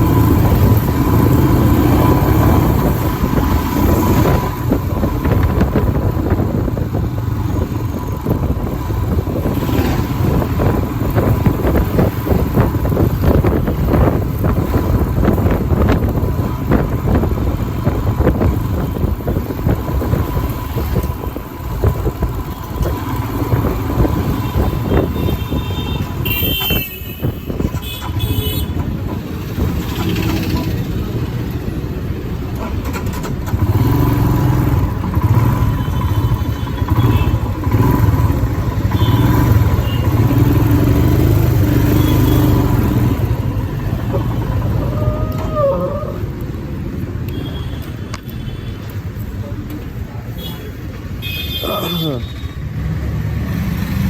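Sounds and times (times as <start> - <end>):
motorcycle engine running: 0.0 - 31.8, 32.5 - 45.0
wind buffeting microphone: 0.0 - 32.3.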